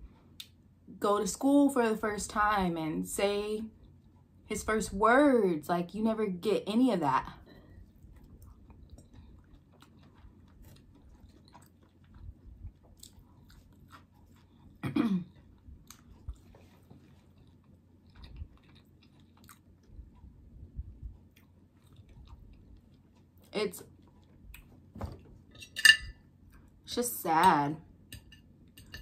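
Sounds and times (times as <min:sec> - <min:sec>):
chewing fried food: 0:03.7 - 0:04.4, 0:07.4 - 0:24.9.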